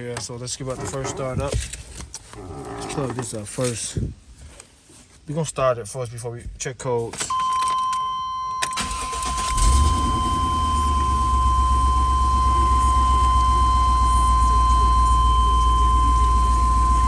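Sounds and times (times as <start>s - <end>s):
steady high tone: 7.6s - 17.0s
car engine starting and idling: 8.6s - 17.0s.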